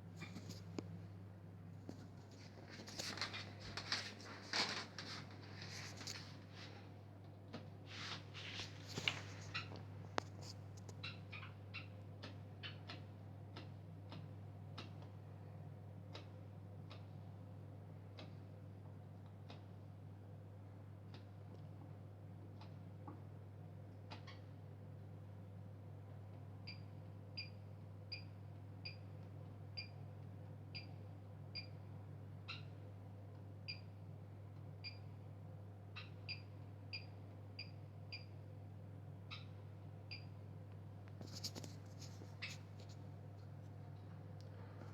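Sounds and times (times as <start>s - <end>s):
washing machine humming: 0.0s - 10.2s.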